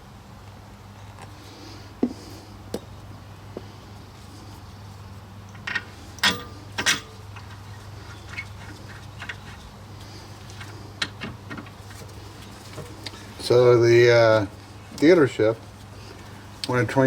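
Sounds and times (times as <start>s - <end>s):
metallic knocks from tools: 5.7s - 7.1s.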